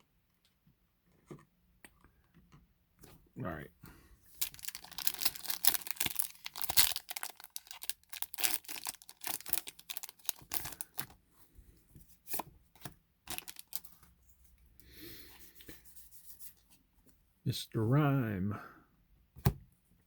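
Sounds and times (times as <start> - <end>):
cards rustling and clicking: 4.4 - 11.2, 12.2 - 14.0
foil wrapper crinkling: 4.4 - 11.2, 12.3 - 14.0.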